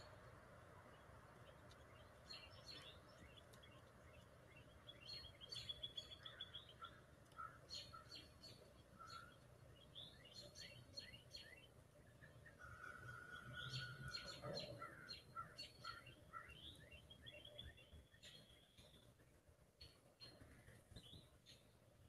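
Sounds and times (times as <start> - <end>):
songbirds chirping: 0.0 - 22.0
bird trill: 4.6 - 11.7, 12.5 - 19.0.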